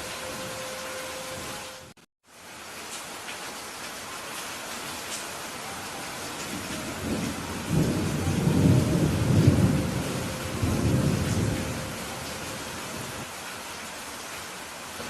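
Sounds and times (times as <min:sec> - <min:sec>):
steady rain hissing: 0:00.0 - 0:15.0
thunder rumble: 0:06.4 - 0:13.3.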